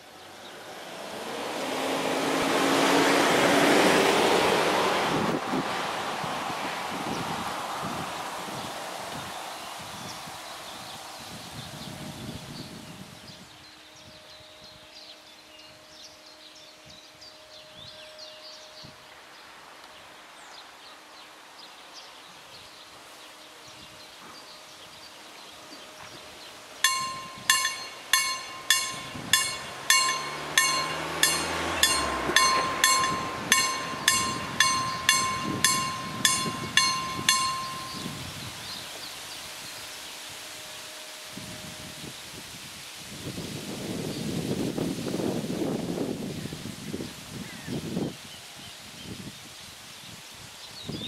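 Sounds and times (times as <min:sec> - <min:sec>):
birds: 0:08.2 - 0:40.3
level crossing bell ringing: 0:26.8 - 0:38.3
low hum rising in pitch: 0:26.8 - 0:38.8.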